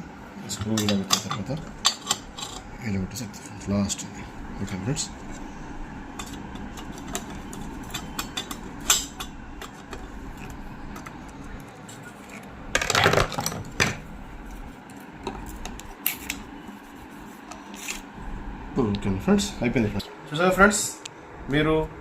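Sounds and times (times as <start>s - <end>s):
clatter of parts: 12.8s - 14.0s.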